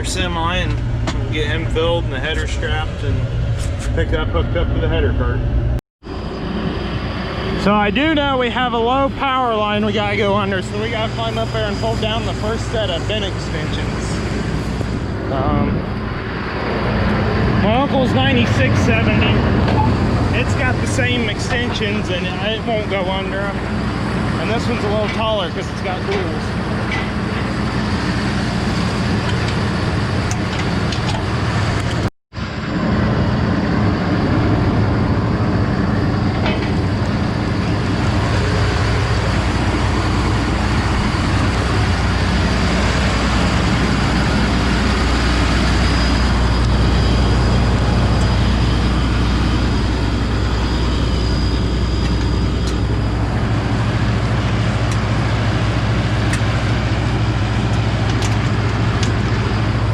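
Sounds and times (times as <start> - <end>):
large diesel engine running: 0.0 - 59.9.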